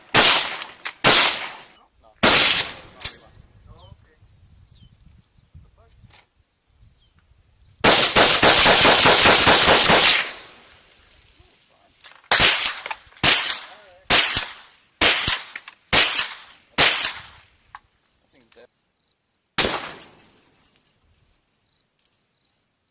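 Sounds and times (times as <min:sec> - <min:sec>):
rifle shots: 0:00.0 - 0:03.2, 0:07.8 - 0:10.7, 0:12.3 - 0:17.5.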